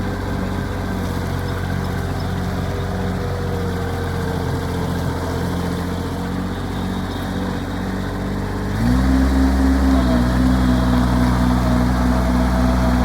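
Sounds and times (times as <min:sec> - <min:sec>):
diesel engine running and revving: 0:00.0 - 0:13.0.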